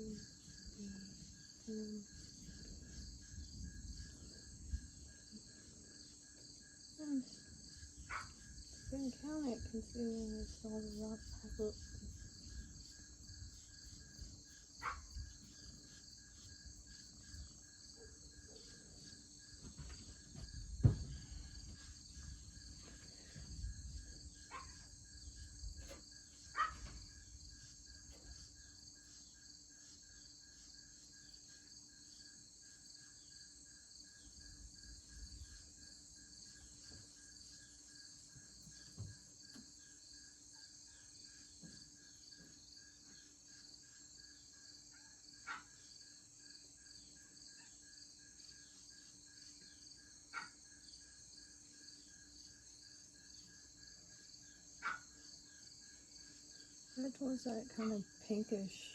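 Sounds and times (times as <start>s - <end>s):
crickets and insects chirring: 0.0s - 58.9s.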